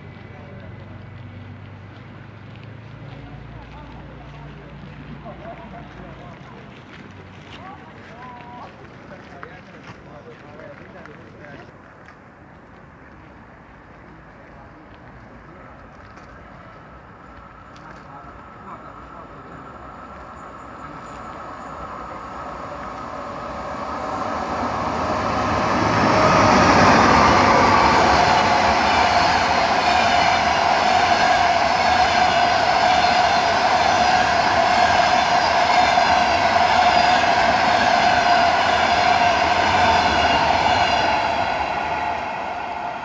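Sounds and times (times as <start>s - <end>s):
train passing: 0.0s - 43.0s
high whine: 18.7s - 43.0s.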